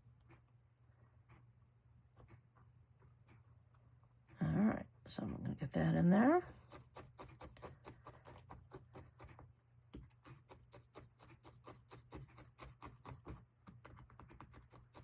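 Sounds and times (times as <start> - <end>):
felting needle ticking into foam: 6.7 - 15.0.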